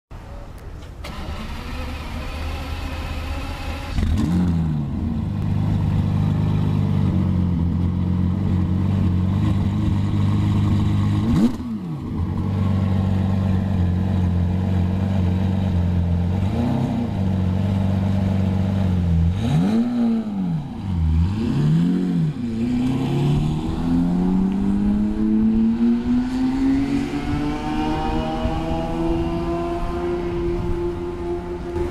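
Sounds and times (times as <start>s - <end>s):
car accelerating away: 1.0s - 31.9s
sports car engine idling: 4.8s - 11.2s.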